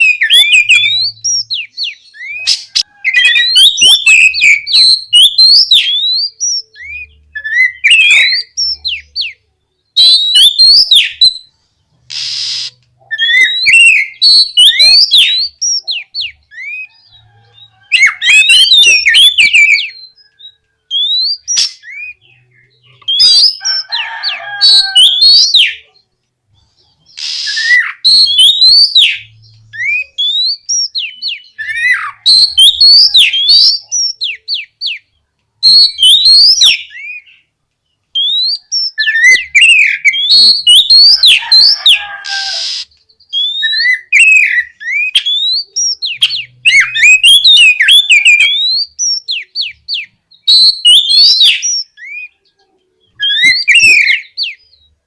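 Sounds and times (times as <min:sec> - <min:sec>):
bird singing whistled notes: 0:00.0 - 0:11.5, 0:12.1 - 0:25.9, 0:27.0 - 0:37.5, 0:38.1 - 0:55.0
bird harsh rasps: 0:12.0 - 0:16.9, 0:27.0 - 0:35.0, 0:38.2 - 0:52.4.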